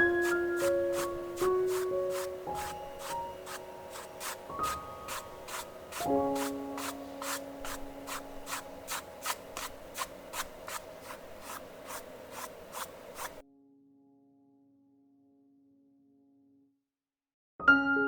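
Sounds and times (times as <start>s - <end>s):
paintbrush scratching on canvas: 0.0s - 13.4s
soft music with held notes: 13.4s - 16.8s, 17.6s - 18.0s.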